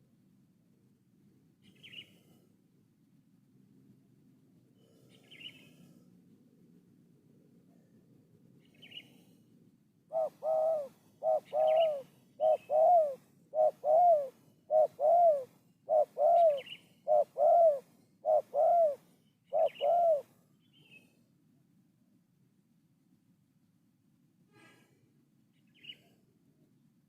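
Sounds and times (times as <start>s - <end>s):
small bird chirping: 1.6s - 2.2s, 5.1s - 5.8s, 8.6s - 9.2s, 10.2s - 21.1s
dove cooing: 10.1s - 20.3s.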